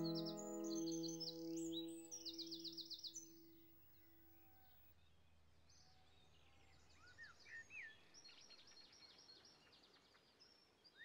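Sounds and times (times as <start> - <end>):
held low note: 0.0 - 2.1
faint birdsong: 0.0 - 2.6.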